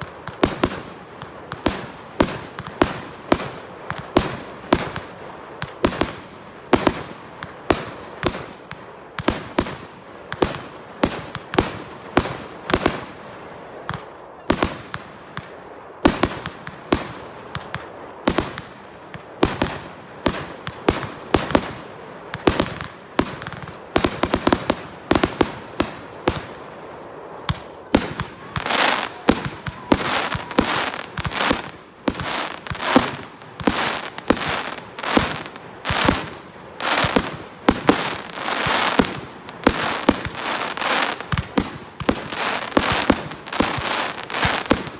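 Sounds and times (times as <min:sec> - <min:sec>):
fireworks bangs: 0:00.0 - 0:44.9
fireworks crackle: 0:00.0 - 0:44.9.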